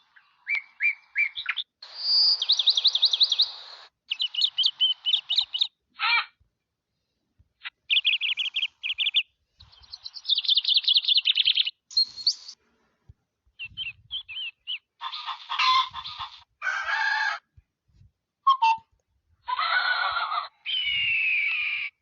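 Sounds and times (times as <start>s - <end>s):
bird chirps: 0.0s - 6.3s, 7.6s - 12.6s, 13.5s - 16.4s, 18.5s - 18.9s
fast bird trill: 0.4s - 6.3s, 7.6s - 12.6s, 13.6s - 16.4s
harsh animal calls: 19.4s - 22.0s.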